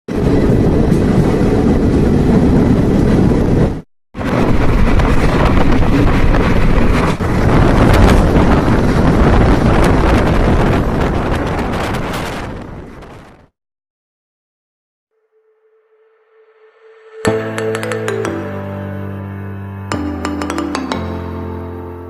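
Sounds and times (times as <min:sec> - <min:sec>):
rumble of moving train: 0:00.1 - 0:13.4
wind buffeting microphone: 0:00.1 - 0:13.5.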